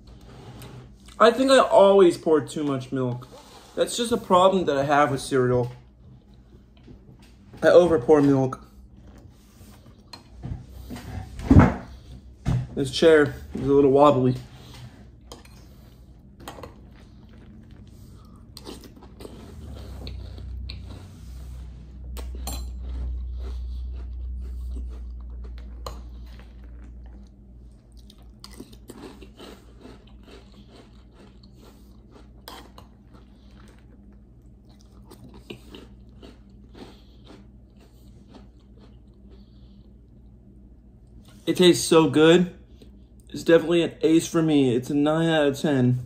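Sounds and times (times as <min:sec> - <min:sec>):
chewing crunchy cereal: 0:14.2 - 0:40.4.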